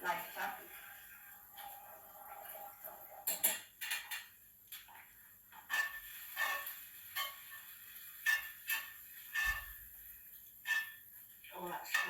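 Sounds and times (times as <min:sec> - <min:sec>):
metal spoon scraping a dish: 0:00.7 - 0:04.3, 0:05.5 - 0:09.9, 0:10.6 - 0:11.0, 0:11.8 - 0:12.0.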